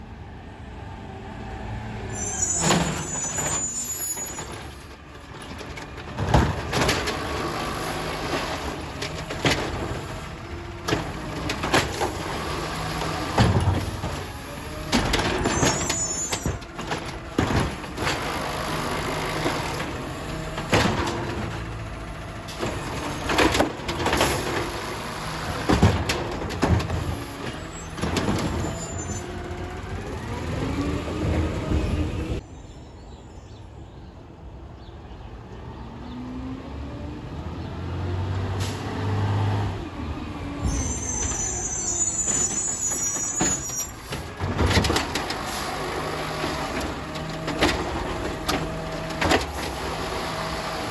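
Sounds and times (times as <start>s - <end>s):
bins knocking and banging: 2.6s - 29.4s, 40.6s - 50.9s
diesel engine running: 2.7s - 32.4s, 39.6s - 50.9s.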